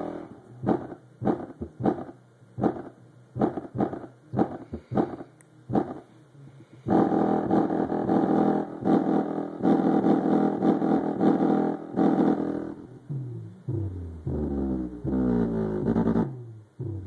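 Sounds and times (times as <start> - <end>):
bass-heavy music through subwoofer: 6.9 - 17.0.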